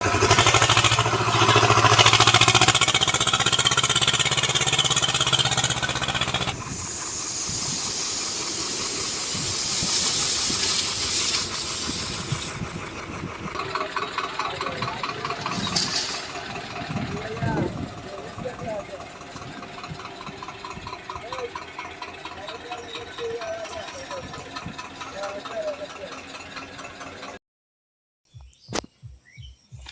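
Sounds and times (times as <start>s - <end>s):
tractor diesel engine running: 0.0s - 27.4s
steady hiss: 6.6s - 12.6s.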